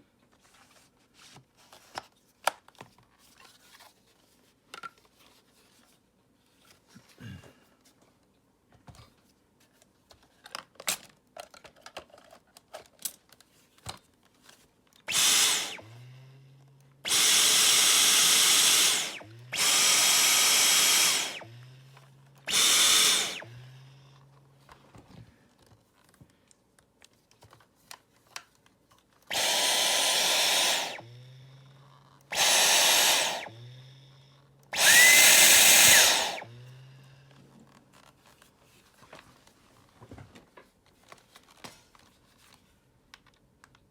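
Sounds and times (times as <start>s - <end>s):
light clicks and handling noises: 0.2s - 15.1s, 24.2s - 29.3s
vacuum cleaner bursts: 15.1s - 16.0s, 17.0s - 21.7s, 22.5s - 23.9s, 29.3s - 31.2s, 32.3s - 33.8s, 34.7s - 36.8s.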